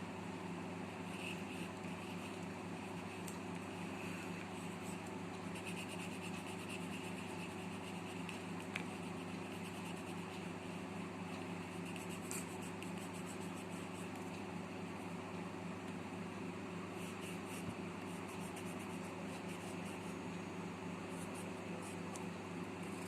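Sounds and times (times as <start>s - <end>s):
steady low hum: 0.0s - 23.0s
pencil scratching on paper: 4.6s - 8.4s, 9.0s - 10.6s, 11.6s - 14.2s, 17.0s - 20.2s, 21.1s - 22.0s.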